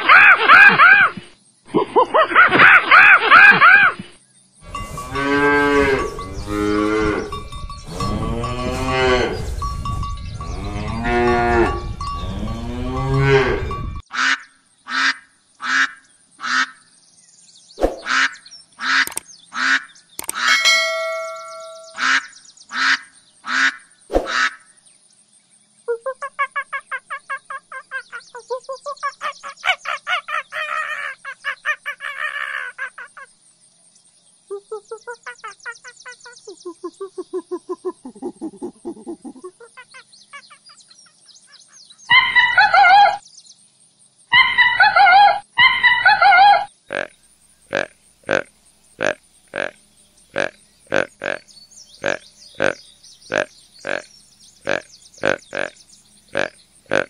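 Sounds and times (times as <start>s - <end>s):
cow mooing: 4.7s - 9.6s, 10.4s - 13.7s, 50.4s - 51.4s
monkeys chattering: 34.6s - 41.0s, 47.7s - 57.0s.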